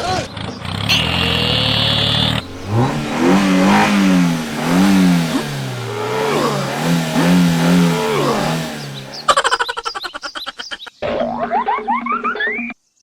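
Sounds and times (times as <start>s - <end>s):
vehicle engine revving: 0.6s - 9.6s.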